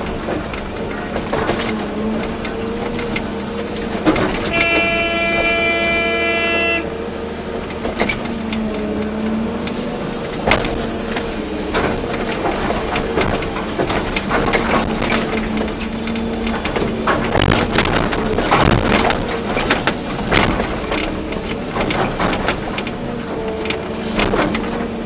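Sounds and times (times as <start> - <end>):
knocks and clatter of machine: 0.0 - 6.0, 6.6 - 25.0
excavator diesel engine running: 0.0 - 25.0
horn blast: 4.3 - 7.2.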